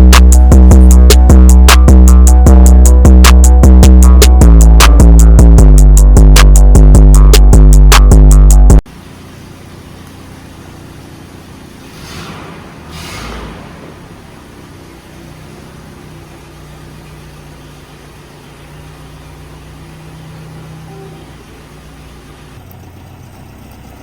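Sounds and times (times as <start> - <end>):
vehicle engine running: 0.0 - 24.0
brief whooshes: 11.8 - 14.3.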